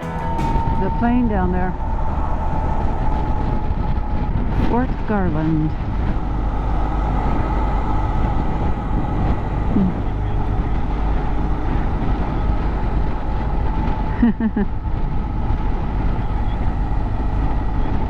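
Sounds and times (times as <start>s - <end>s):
wind rush on microphone: 0.0s - 18.0s
motorcycle engine running: 4.8s - 18.0s.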